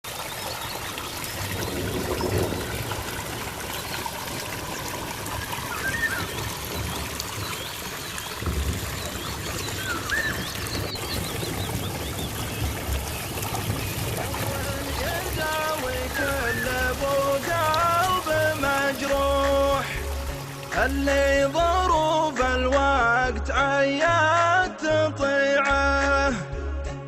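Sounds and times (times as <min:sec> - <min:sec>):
stream water trickling: 0:00.0 - 0:23.0
small birds chirping: 0:00.1 - 0:19.9.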